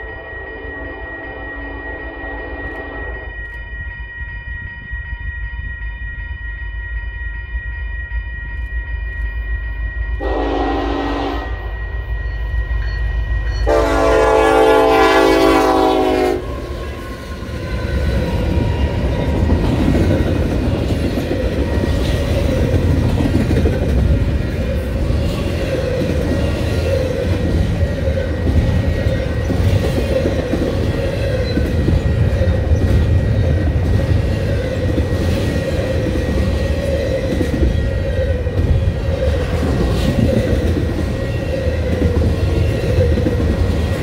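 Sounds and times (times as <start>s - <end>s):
train air horn blasts: 0.0s - 3.4s, 10.2s - 11.7s, 13.6s - 17.9s
diesel locomotive engine rumble: 0.0s - 44.0s
train wheels rumbling on rails: 7.4s - 44.0s.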